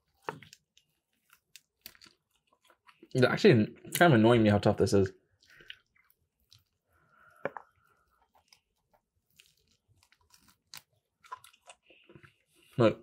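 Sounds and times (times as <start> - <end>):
mouth biting and chewing: 9.3 - 12.3.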